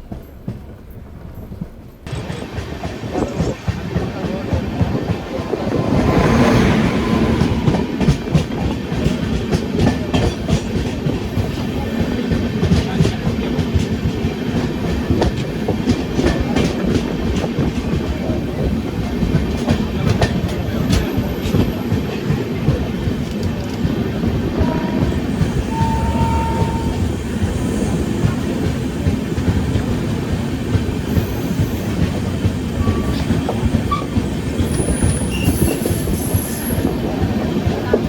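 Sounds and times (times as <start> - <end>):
train coaches rumbling: 0.0 - 38.0.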